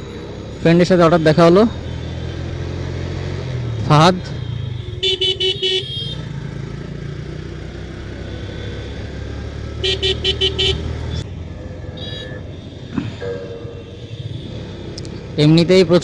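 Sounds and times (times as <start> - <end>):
motorcycle engine rumble: 1.7 - 16.0
vehicle horn tooting: 4.3 - 6.2, 9.8 - 11.0.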